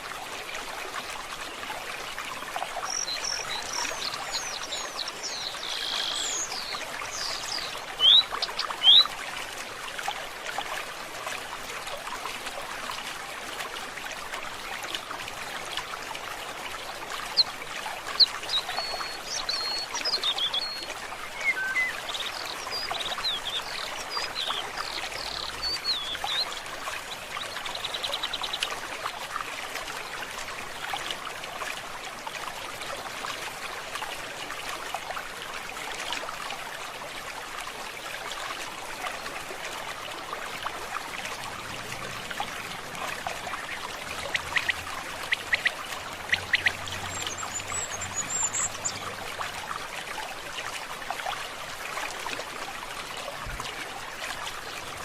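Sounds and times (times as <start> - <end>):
stream trickling: 0.0 - 55.0
birds chirping and whistling: 8.0 - 9.0, 21.4 - 24.6, 46.3 - 49.0.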